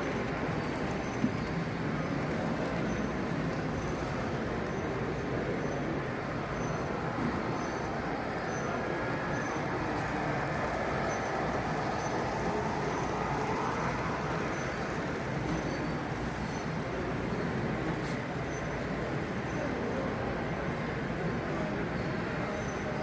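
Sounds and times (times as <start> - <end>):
large hall noise: 0.0 - 23.0
model trains rolling: 0.0 - 23.0.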